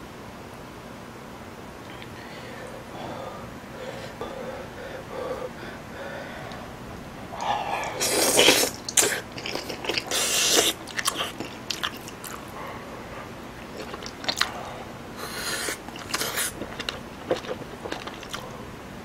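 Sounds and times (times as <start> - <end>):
loud slurping of food: 7.4 - 9.2, 10.0 - 10.8, 15.2 - 16.6
wet mouth clicks: 7.4 - 12.5, 15.2 - 18.5
chewing: 7.4 - 18.6.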